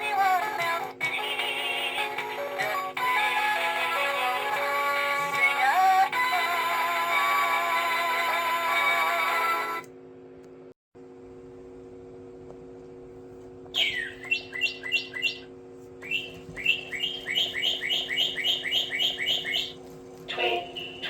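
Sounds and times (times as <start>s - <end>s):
low electrical hum: 0.0s - 21.0s
toy bird chirping: 13.8s - 21.0s.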